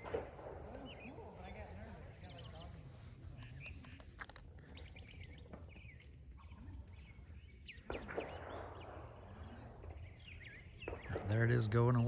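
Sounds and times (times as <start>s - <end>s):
birds chirping: 0.0s - 4.2s.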